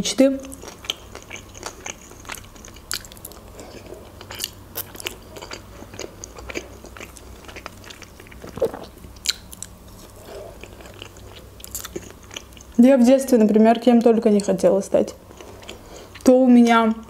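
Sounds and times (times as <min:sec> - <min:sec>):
person chewing food: 0:00.4 - 0:12.8, 0:15.3 - 0:16.3.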